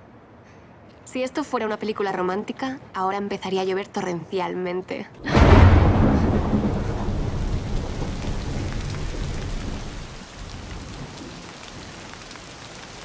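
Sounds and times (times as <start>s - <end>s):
loud thunder clap: 5.2s - 11.8s
thunder rumbling: 5.2s - 12.4s
heavy rain hissing: 5.3s - 13.0s.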